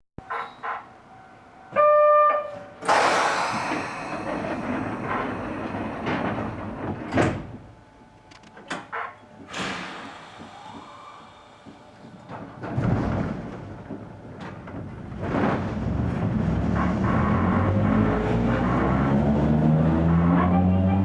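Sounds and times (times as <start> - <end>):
train rushing noise: 2.7 - 8.4, 9.3 - 21.0
sharp thud: 2.8 - 6.3.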